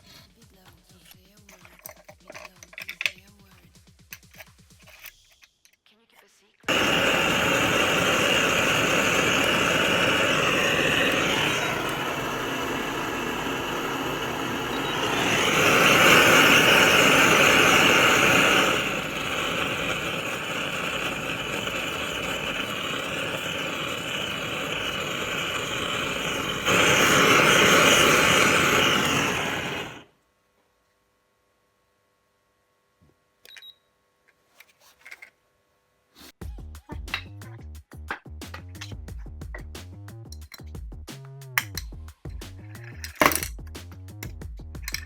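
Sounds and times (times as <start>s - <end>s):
motor-driven machine running: 6.7s - 30.0s.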